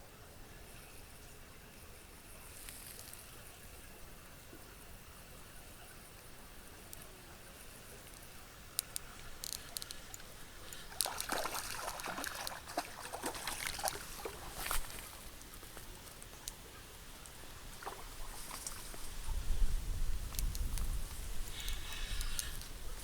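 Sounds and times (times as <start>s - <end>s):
water sloshing and trickling: 7.6s - 23.0s
small splashes and clicks: 7.9s - 19.1s, 20.3s - 22.8s.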